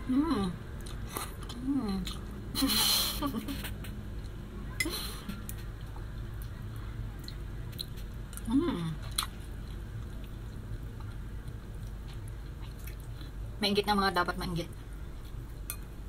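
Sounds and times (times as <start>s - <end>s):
person chewing food: 7.2s - 13.4s.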